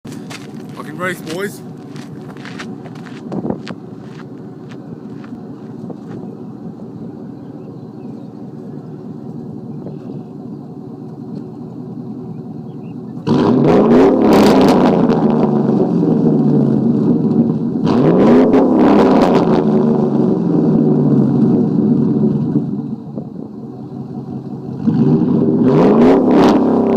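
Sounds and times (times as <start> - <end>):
truck engine idling and revving: 0.0 - 26.9.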